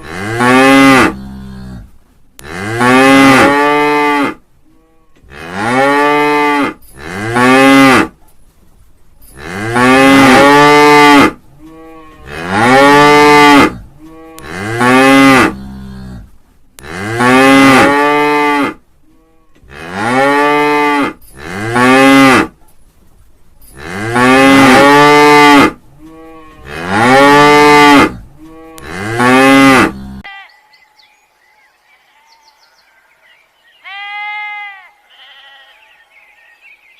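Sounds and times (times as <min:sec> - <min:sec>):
cow mooing: 0:09.4 - 0:22.5, 0:23.8 - 0:30.3.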